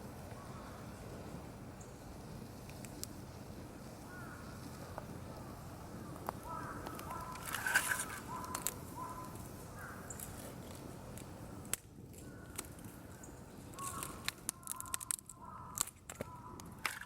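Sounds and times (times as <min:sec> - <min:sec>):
campfire crackling and popping: 0:00.0 - 0:17.0
bird calling: 0:00.3 - 0:00.9, 0:04.0 - 0:10.5, 0:11.6 - 0:17.0.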